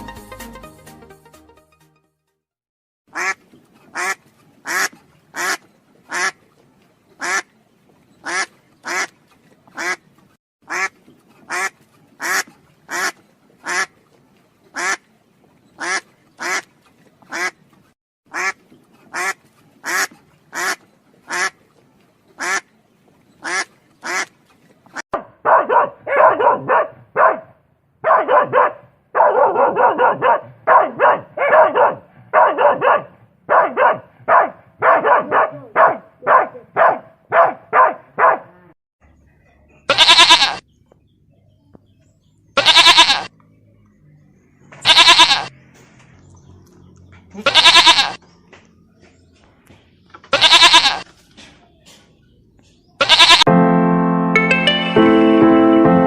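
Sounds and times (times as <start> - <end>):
duck quacking: 3.1 - 6.4, 7.2 - 7.5, 8.2 - 9.2, 9.8 - 10.0, 10.6 - 13.9, 14.7 - 15.0, 15.8 - 16.7, 17.3 - 17.6, 18.3 - 21.6, 22.4 - 22.7, 23.4 - 24.3, 39.9 - 40.6, 44.8 - 45.5
dog barking: 25.2 - 38.7.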